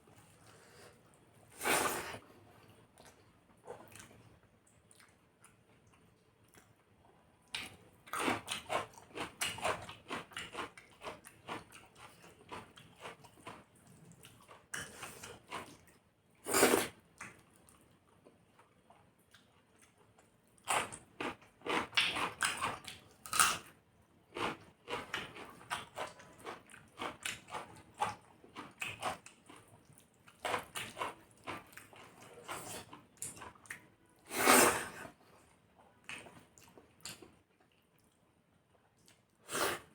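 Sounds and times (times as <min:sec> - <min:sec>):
person chewing food: 0:24.4 - 0:33.8.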